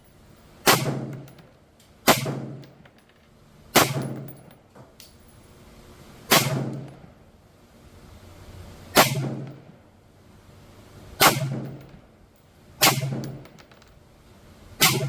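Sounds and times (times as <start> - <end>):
rifle shots with ringing echo: 0.6 - 1.3, 2.0 - 2.6, 3.7 - 4.4, 6.3 - 7.0, 9.0 - 9.6, 11.2 - 11.9, 12.8 - 13.5, 14.8 - 15.0.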